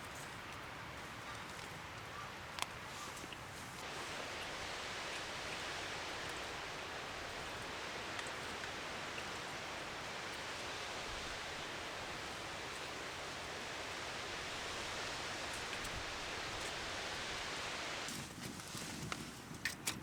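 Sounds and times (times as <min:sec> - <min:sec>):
faint ticks: 0:02.5 - 0:20.0
steady rushing noise: 0:03.8 - 0:18.1.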